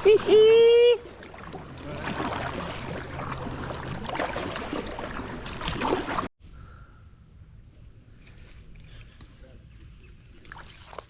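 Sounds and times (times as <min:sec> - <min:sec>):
kayak paddle splashing: 0:00.0 - 0:06.3
steady running water: 0:00.0 - 0:06.3.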